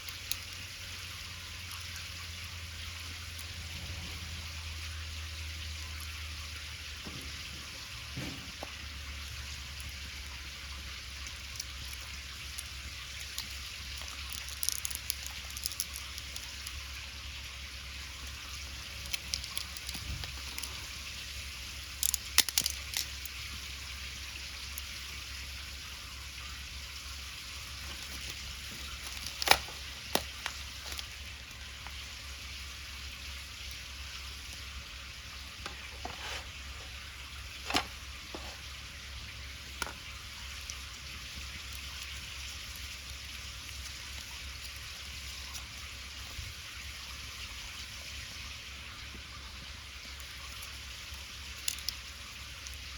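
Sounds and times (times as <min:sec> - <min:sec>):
wood fire hissing: 0:00.0 - 0:52.9
fire pops and clicks: 0:07.0 - 0:17.0, 0:18.2 - 0:25.0, 0:27.5 - 0:32.0, 0:39.6 - 0:44.9.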